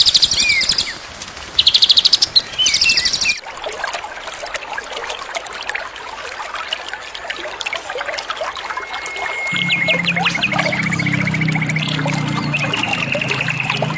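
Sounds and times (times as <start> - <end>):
water trickling and bubbling: 2.5 - 13.9
songbird trilling and whistling: 8.7 - 13.9.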